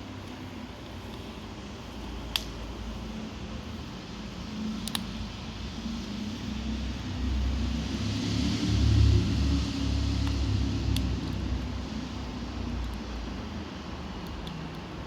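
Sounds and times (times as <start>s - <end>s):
fire low rumble: 0.0s - 15.0s
fire popping: 2.0s - 2.8s, 4.8s - 5.1s.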